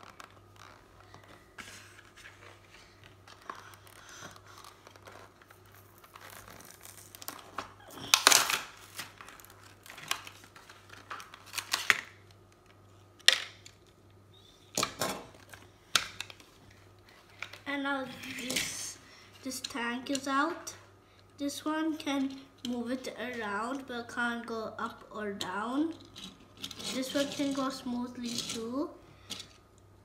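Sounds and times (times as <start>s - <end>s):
packaging crinkling and tearing: 3.2s - 12.8s.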